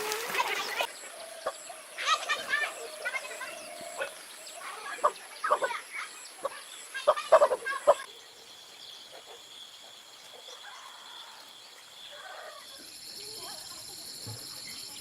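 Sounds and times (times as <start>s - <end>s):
poultry calling: 6.4s - 8.1s.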